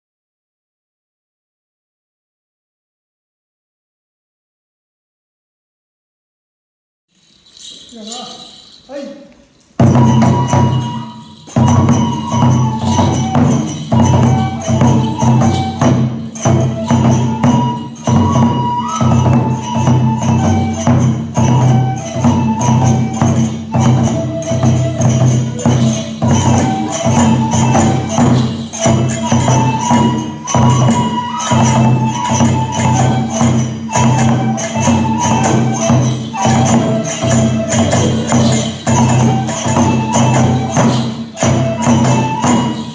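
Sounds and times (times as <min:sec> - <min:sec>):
hand cymbals clashing: 0:07.2 - 0:42.9
high held flute melody: 0:07.5 - 0:09.1, 0:09.8 - 0:42.9
drum beats: 0:09.7 - 0:42.9.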